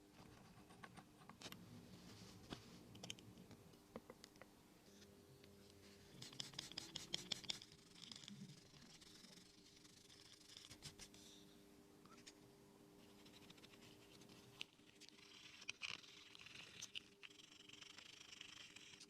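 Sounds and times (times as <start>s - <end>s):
faint steady hum: 0.0s - 19.0s
faint scratching: 4.8s - 11.5s, 12.1s - 19.0s.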